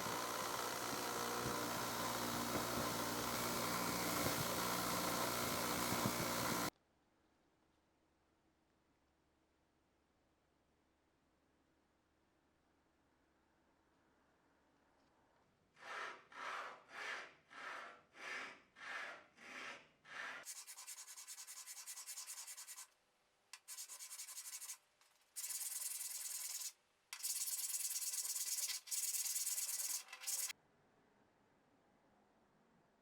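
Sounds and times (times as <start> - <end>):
sanding steel parts: 15.8 - 22.9, 23.6 - 30.5.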